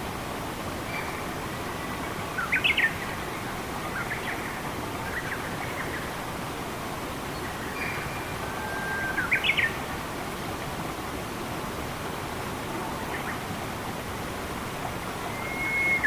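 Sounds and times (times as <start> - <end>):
running water: 0.0 - 16.0
faint bird whistles: 15.3 - 16.0.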